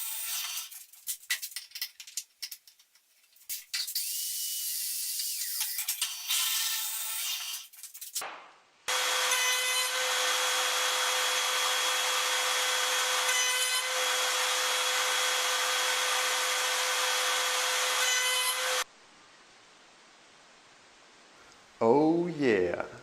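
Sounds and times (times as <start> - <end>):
power tool rasping wood: 8.9 - 18.8.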